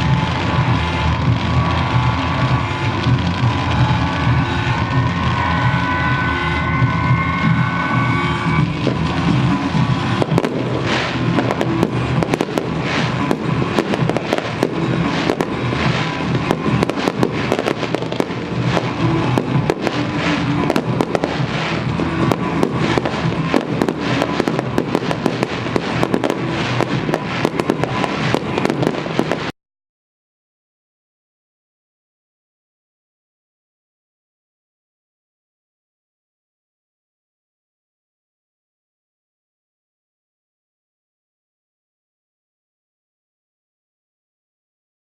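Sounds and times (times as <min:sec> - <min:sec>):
show music: 0:00.0 - 0:29.5
fireworks cracking and crackling: 0:00.0 - 0:29.6.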